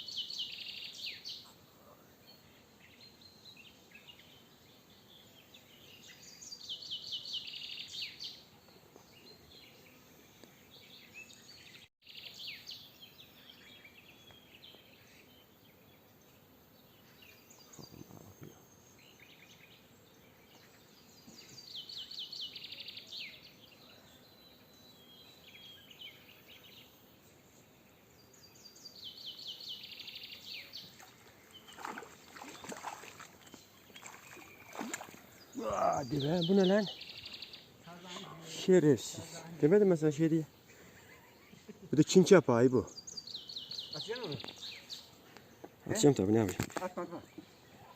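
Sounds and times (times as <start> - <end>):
faint outdoor background: 0.0 - 47.9
songbird trilling: 28.9 - 38.0, 42.9 - 45.1.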